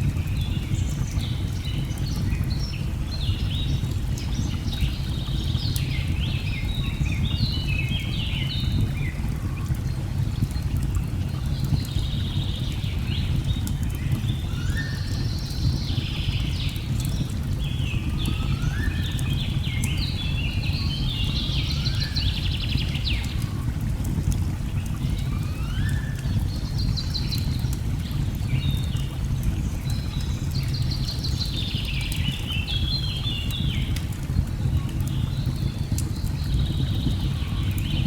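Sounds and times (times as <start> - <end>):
fire crackles: 0.0 - 38.0
birdsong whistles and trills: 11.7 - 23.6, 24.7 - 34.0.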